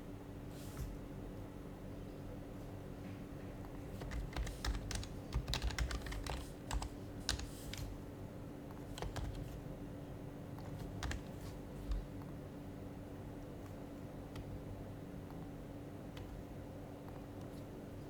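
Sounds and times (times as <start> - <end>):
soft keyboard typing clicks: 4.0 - 8.0, 8.7 - 9.6, 10.5 - 12.3, 13.6 - 14.6, 15.2 - 17.7.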